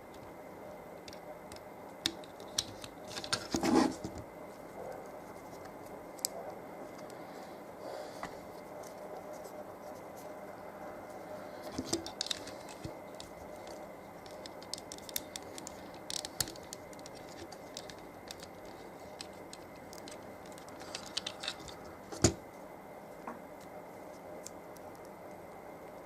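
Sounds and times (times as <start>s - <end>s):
plastic packaging clicks and rattles: 11.8s - 22.3s.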